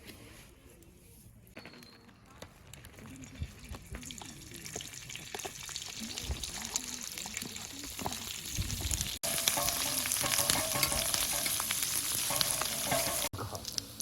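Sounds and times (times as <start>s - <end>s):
food sizzling in a pan: 4.7s - 14.0s.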